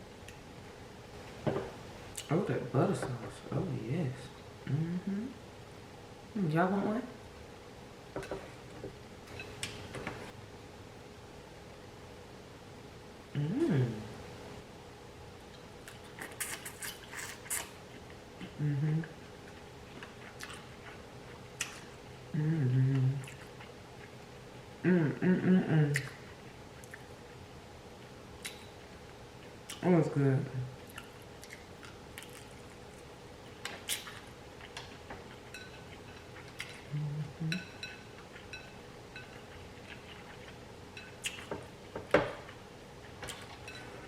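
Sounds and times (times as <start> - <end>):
person humming mm: 4.6 - 5.4, 13.3 - 14.2, 18.4 - 19.2, 22.3 - 23.3, 24.8 - 26.2, 36.8 - 37.7
wet chewing and lip smacks: 28.4 - 28.8, 30.8 - 36.9.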